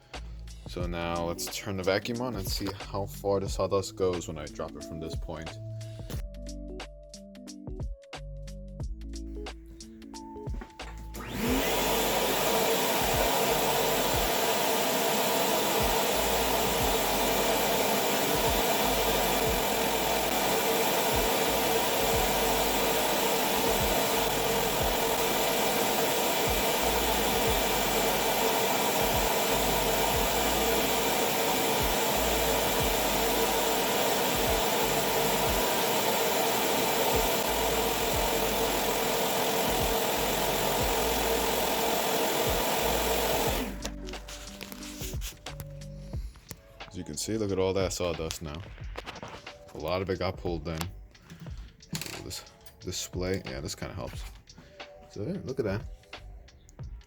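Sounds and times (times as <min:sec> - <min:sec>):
shop vacuum running: 0:10.5 - 0:45.3.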